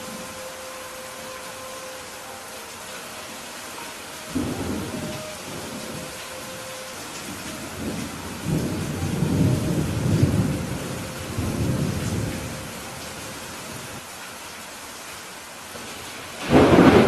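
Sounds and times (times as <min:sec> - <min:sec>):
steady rain falling: 0:00.0 - 0:17.0
low rumble of thunder: 0:04.3 - 0:06.6, 0:07.2 - 0:13.0, 0:16.4 - 0:17.0.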